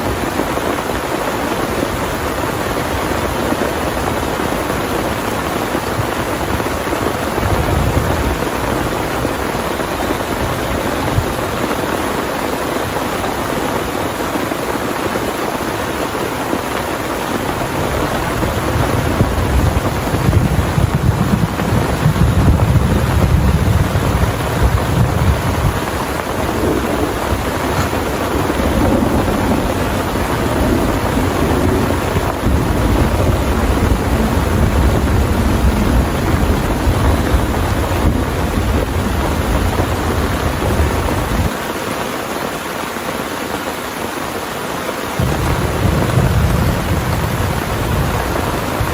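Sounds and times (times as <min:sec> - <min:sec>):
heavy rain pouring: 0:00.0 - 0:48.9
thunder rumbling: 0:01.7 - 0:11.9, 0:16.6 - 0:41.5, 0:45.2 - 0:48.9.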